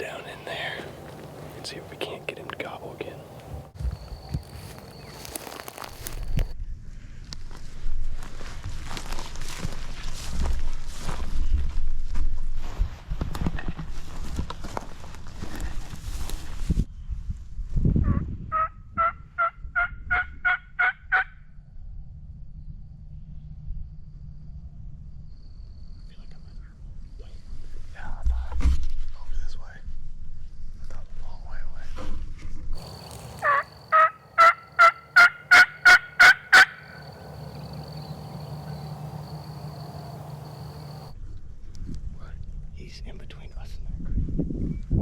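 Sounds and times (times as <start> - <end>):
turkey yelps: 33.4 - 37.8.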